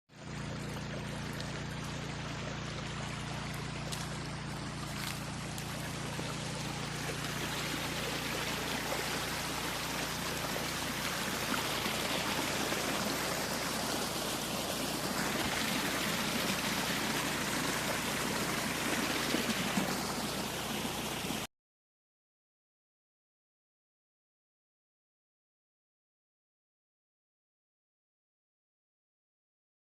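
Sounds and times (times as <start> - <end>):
water gushing from pump outlet: 0.1 - 21.5
small petrol engine running: 0.3 - 21.0.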